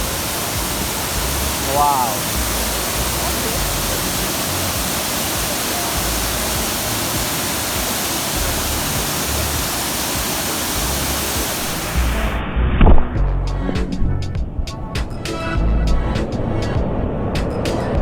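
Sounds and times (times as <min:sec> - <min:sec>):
waterfall pouring: 0:00.0 - 0:12.4.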